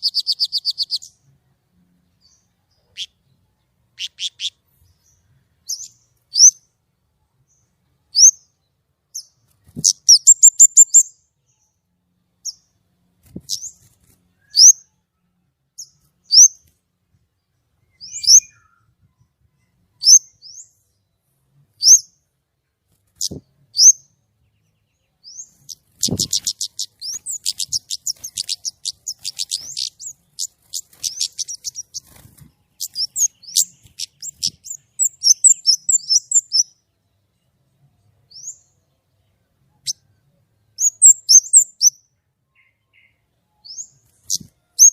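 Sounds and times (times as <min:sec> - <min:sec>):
bird singing high piercing notes: 0:09.2 - 0:11.2, 0:18.0 - 0:18.9, 0:25.3 - 0:36.7, 0:40.8 - 0:42.0.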